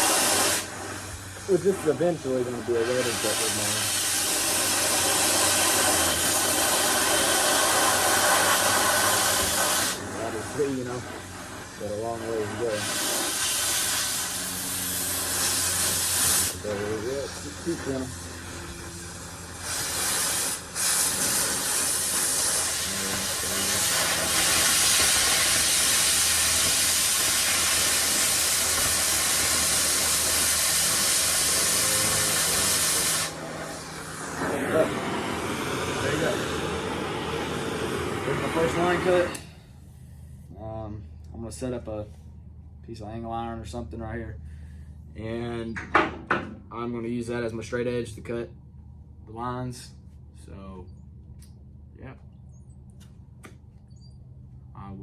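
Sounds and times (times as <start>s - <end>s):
cutting torch hissing: 0.0s - 39.8s
low electrical hum: 0.0s - 55.0s.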